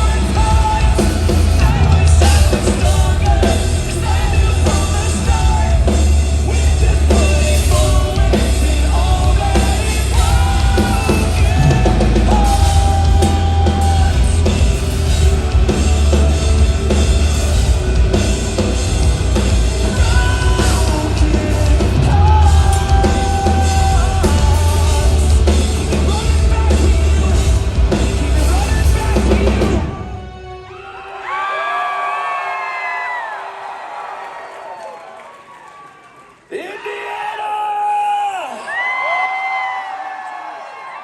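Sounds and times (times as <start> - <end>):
drum kit: 0.0 - 30.6
distorted guitars: 0.0 - 30.8
person singing: 0.0 - 30.8.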